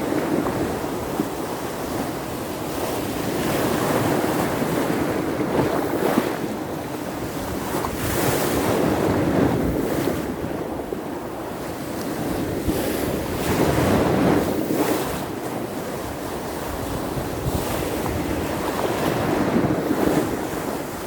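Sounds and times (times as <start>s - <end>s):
sea waves breaking on shore: 0.0s - 21.0s
wind buffeting microphone: 0.0s - 21.0s.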